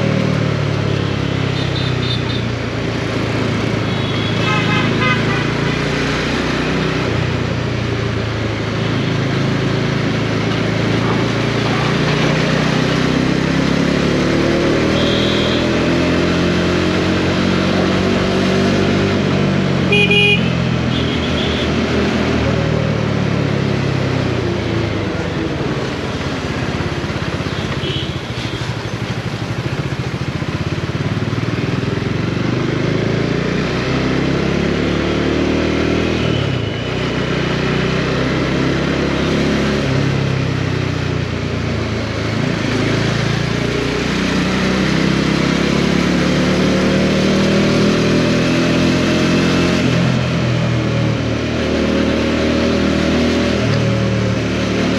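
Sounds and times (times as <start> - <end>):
motorcycle engine revving: 0.0 - 54.9
road and wind noise: 0.0 - 54.9
short horn beeps: 14.9 - 15.6.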